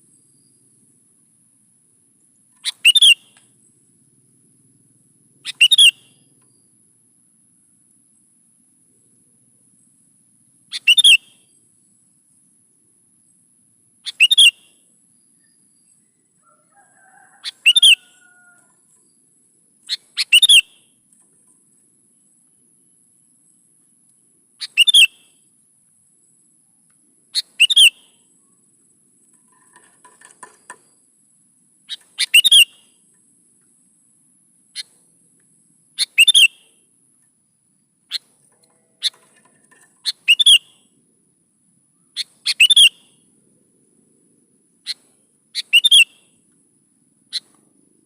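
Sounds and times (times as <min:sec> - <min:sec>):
faint bird chirps: 0:00.0 - 0:01.0, 0:02.1 - 0:08.3, 0:08.9 - 0:12.6, 0:13.2 - 0:46.6, 0:47.2 - 0:48.0
bird whistled phrases: 0:02.6 - 0:03.3, 0:05.5 - 0:06.0, 0:10.7 - 0:11.4, 0:14.1 - 0:14.7, 0:17.4 - 0:18.5, 0:19.9 - 0:20.7, 0:24.6 - 0:25.2, 0:27.4 - 0:28.1, 0:32.2 - 0:32.9, 0:36.0 - 0:36.7, 0:40.1 - 0:40.7, 0:42.2 - 0:43.1, 0:45.6 - 0:46.2.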